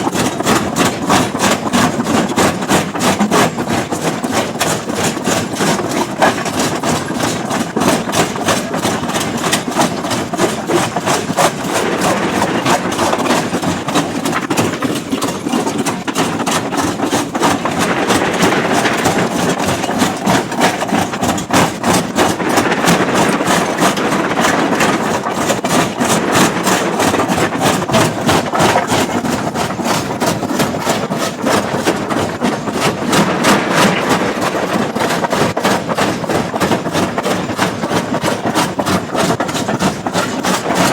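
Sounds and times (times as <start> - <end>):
engine running steadily: 0.0 - 40.9
rock crushing impacts: 10.5 - 40.9.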